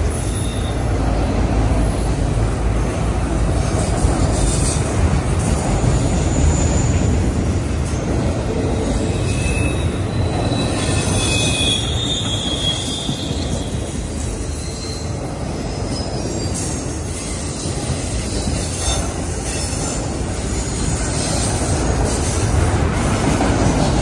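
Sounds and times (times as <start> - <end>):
train wheels rumbling on rail: 0.0 - 24.0
high-pitched wheel squeals: 0.1 - 2.3, 8.7 - 22.5.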